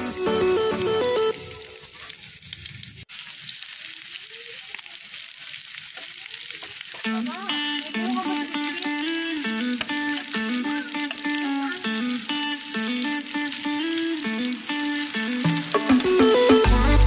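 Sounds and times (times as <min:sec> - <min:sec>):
background music: 0:00.0 - 0:01.7, 0:07.1 - 0:17.0
food sizzling in hot oil: 0:00.0 - 0:17.0.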